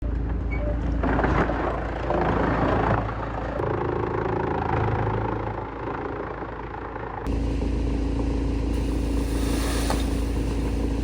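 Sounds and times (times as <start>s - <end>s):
wood chipper engine drone: 0.1s - 11.0s
wood being shredded: 7.4s - 11.0s.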